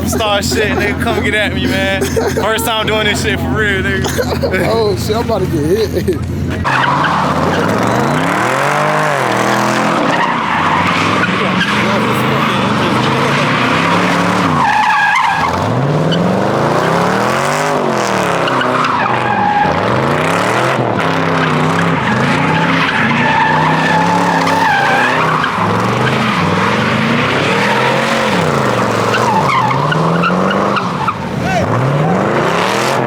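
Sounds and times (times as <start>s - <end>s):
car engine revving: 0.0s - 33.0s
tyres squealing: 0.0s - 33.0s.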